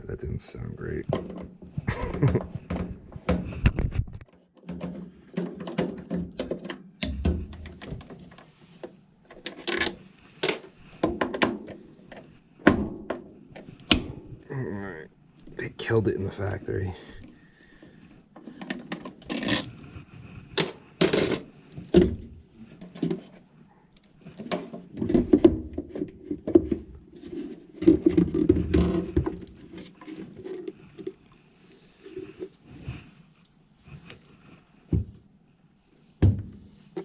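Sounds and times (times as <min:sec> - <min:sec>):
furnace parts and tools clattering: 0:00.9 - 0:14.6, 0:15.6 - 0:19.9, 0:20.5 - 0:31.3.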